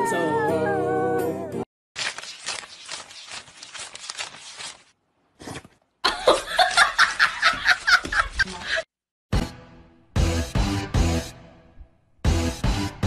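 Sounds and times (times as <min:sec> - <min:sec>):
banknotes rustling: 0:02.0 - 0:05.0, 0:06.3 - 0:08.8
person laughing: 0:06.0 - 0:08.9.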